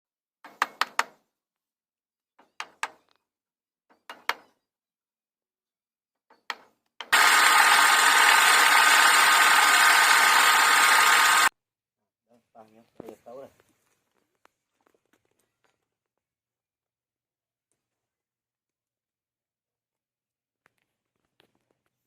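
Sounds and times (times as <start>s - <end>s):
power tool running: 7.1s - 11.5s.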